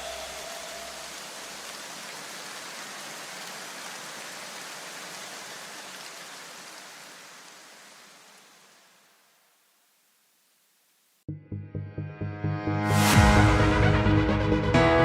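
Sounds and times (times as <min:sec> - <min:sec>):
rain-like hiss: 0:00.0 - 0:11.3.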